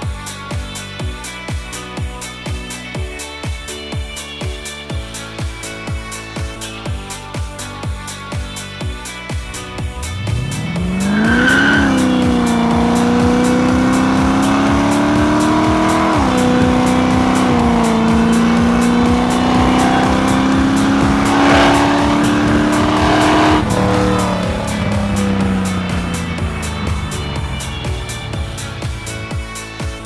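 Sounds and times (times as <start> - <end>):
music with steady beat: 0.0 - 30.0
race car engine accelerating: 9.5 - 29.6.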